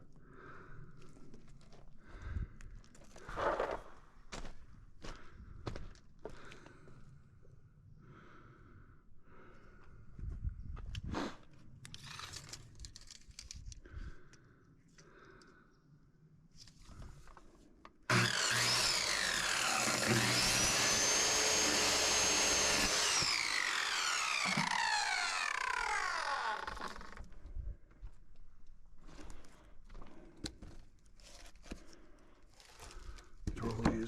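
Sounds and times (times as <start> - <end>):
electric saw whining: 18.1 - 27.3.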